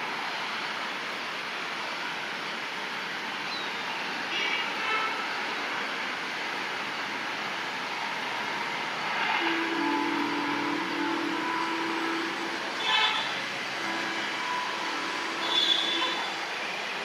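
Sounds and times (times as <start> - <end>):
electric trains rushing: 5.3 - 17.0
high-pitched train horn toots: 9.1 - 16.5.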